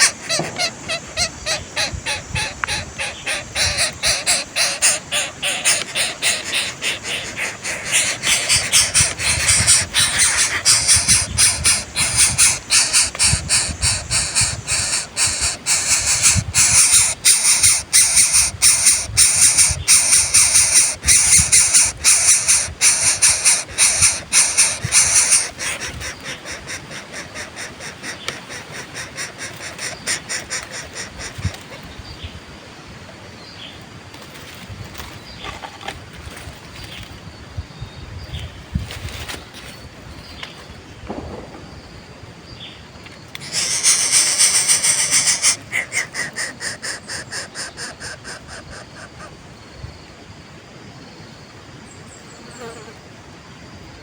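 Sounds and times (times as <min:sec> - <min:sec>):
nestlings begging calls: 0:00.0 - 0:32.3, 0:43.4 - 0:49.4.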